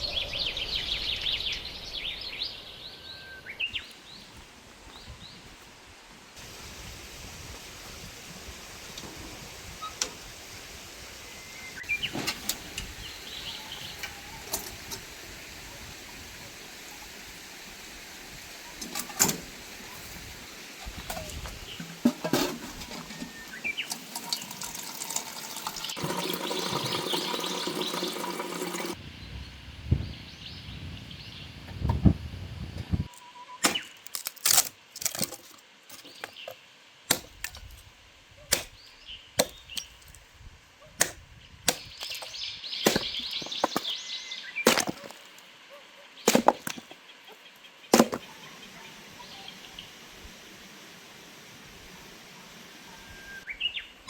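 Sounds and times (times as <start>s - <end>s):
wood being chopped: 33.6s - 36.3s, 37.1s - 37.8s, 38.5s - 38.8s, 39.4s - 40.2s, 41.0s - 44.0s, 44.7s - 45.3s, 46.3s - 46.9s, 47.9s - 48.3s.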